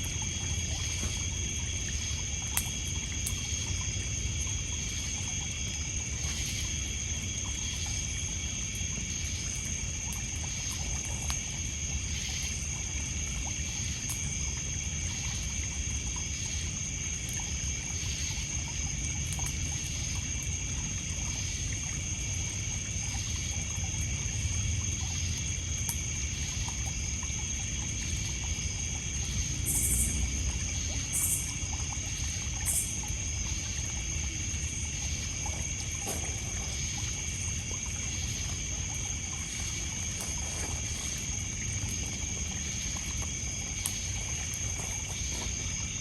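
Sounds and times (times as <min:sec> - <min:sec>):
faint campfire crackles: 0:00.0 - 0:46.0
insects trilling: 0:00.0 - 0:46.0
water lapping on pebble shore: 0:31.1 - 0:46.0.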